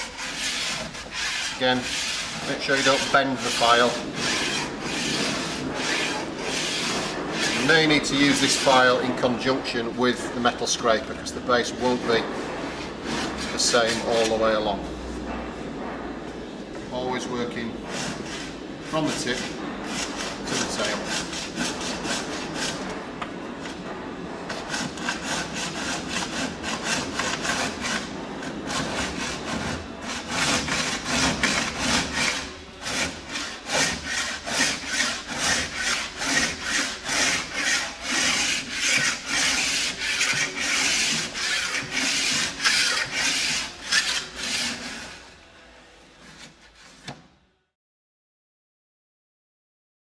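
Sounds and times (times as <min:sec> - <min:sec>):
file scraping a ski edge: 0:00.0 - 0:08.9, 0:13.0 - 0:14.6, 0:17.9 - 0:22.9, 0:24.5 - 0:45.2.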